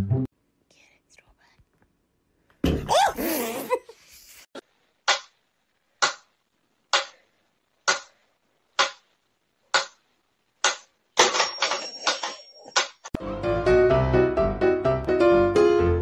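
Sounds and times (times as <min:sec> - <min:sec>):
sharp knocks: 0:07.9 - 0:08.1, 0:08.8 - 0:09.0.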